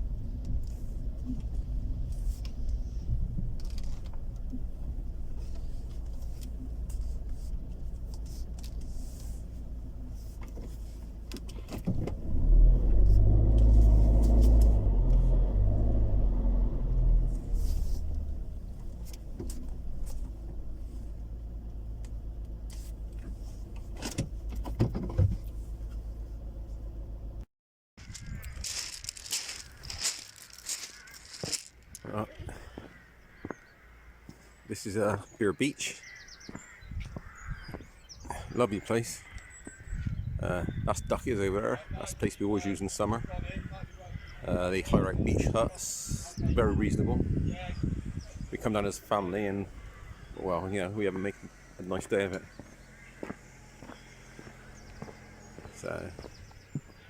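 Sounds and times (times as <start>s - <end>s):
car engine and road rumble: 0.0s - 57.0s
small clicks and rattles: 3.6s - 4.6s, 28.1s - 32.0s.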